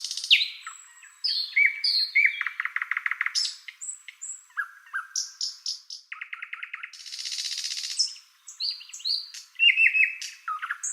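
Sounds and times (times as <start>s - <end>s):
birds chirping and calling: 0.0s - 10.9s.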